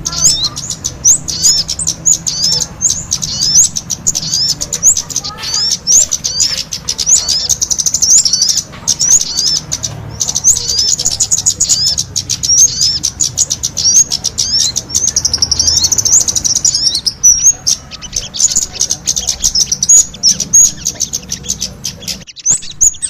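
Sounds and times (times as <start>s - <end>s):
songbirds singing rapid chirps: 0.0s - 23.0s.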